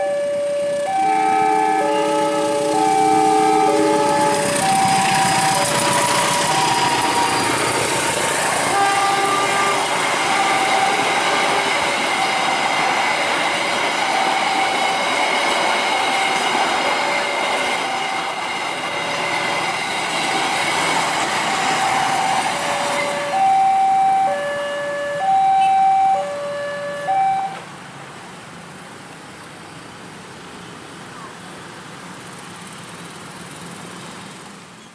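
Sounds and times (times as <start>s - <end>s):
two-note crossing alarm: 0.0s - 7.6s, 21.6s - 27.6s
train passing: 0.0s - 34.8s.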